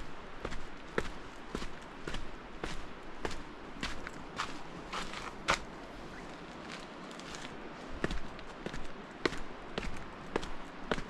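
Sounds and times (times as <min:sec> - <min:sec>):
footsteps scuffing: 0:00.4 - 0:05.8.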